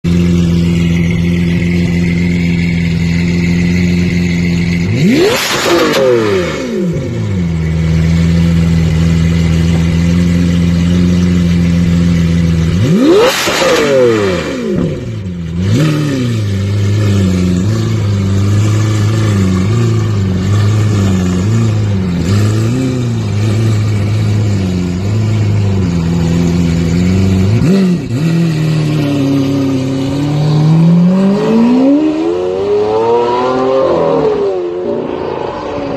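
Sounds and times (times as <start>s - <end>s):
sports car engine revving: 0.1s - 35.9s.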